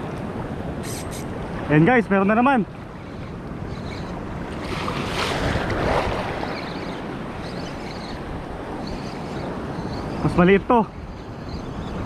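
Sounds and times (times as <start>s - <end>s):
sea waves breaking on shore: 0.0s - 12.0s
wind on microphone: 2.7s - 12.0s.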